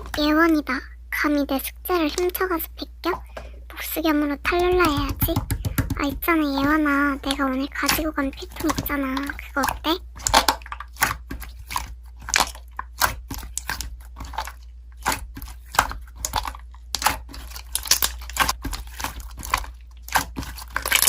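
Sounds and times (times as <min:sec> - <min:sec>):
slime crackling and popping: 0:04.5 - 0:21.0.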